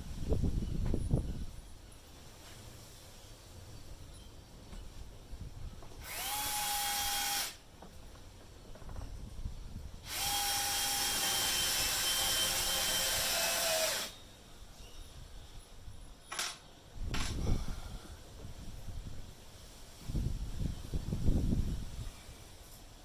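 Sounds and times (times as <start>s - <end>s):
electric drill whining: 6.0s - 7.6s, 10.0s - 14.2s.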